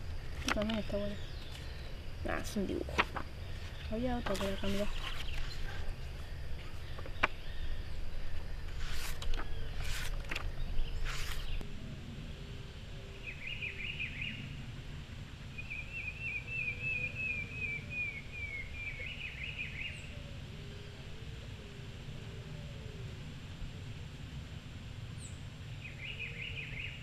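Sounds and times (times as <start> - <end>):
rustling: 0.0 - 7.4, 8.3 - 11.6
songbird chirping and trilling: 0.0 - 14.6, 15.4 - 23.0, 25.2 - 27.0.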